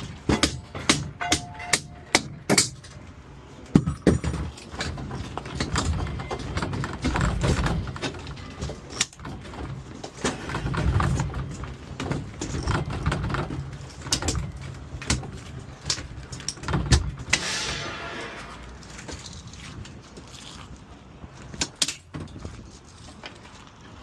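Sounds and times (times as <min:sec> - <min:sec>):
metal scrap knocks and clanks: 0:00.0 - 0:03.0, 0:16.3 - 0:19.4.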